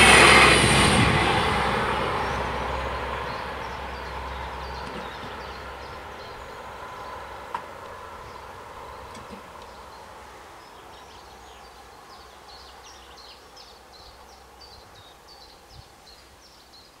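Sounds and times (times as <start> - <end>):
diesel train rumbling: 0.0 - 13.0
birds chirping: 0.8 - 17.0.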